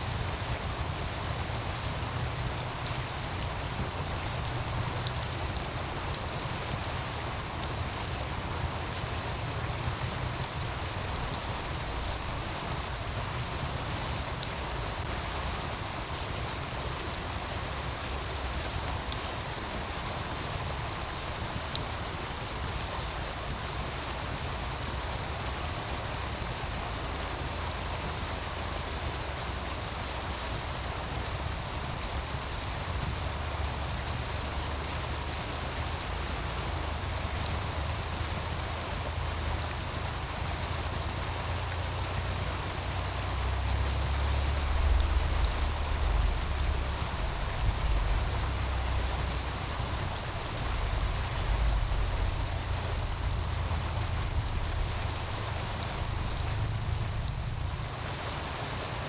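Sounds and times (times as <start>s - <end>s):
wood fire popping: 0.0s - 58.2s
stream rushing: 0.0s - 59.0s
deep rumble: 41.1s - 58.1s.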